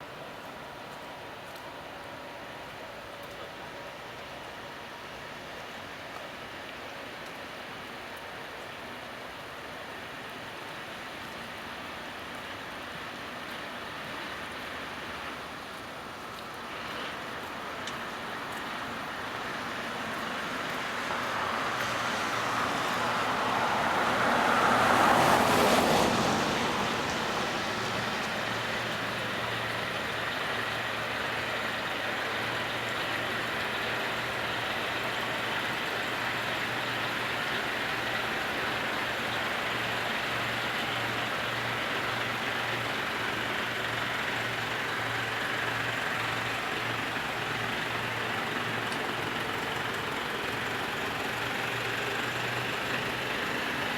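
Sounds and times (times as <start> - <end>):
heavy vehicle engine humming: 0.1 - 53.9
road vehicle passing: 16.7 - 53.9.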